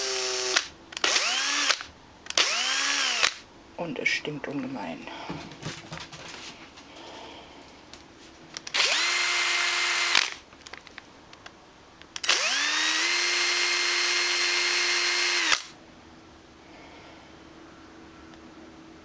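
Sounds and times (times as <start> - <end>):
drill motor whine: 0.0 - 3.4, 8.6 - 10.4, 12.2 - 15.8.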